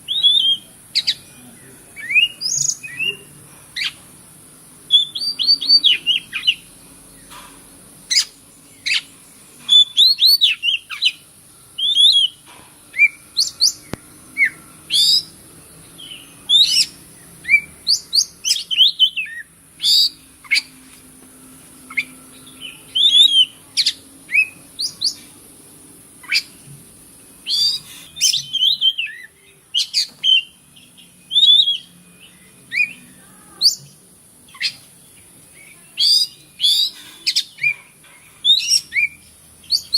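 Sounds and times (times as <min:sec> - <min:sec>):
bird singing whistles and chirps: 0:00.0 - 0:01.2, 0:02.0 - 0:04.0, 0:04.9 - 0:06.7, 0:09.7 - 0:11.2, 0:11.8 - 0:15.4, 0:16.0 - 0:20.7, 0:21.9 - 0:25.2, 0:27.4 - 0:34.8, 0:35.5 - 0:37.8, 0:38.4 - 0:39.9
steady high hiss: 0:00.0 - 0:39.9.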